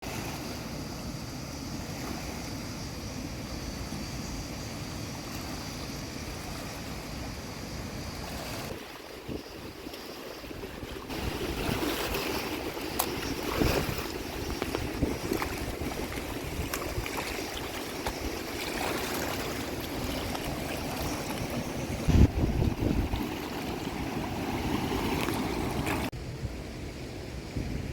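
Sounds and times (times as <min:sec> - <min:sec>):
stream water rushing: 0:00.0 - 0:26.1
wind noise on microphone: 0:08.1 - 0:18.4, 0:19.4 - 0:27.9.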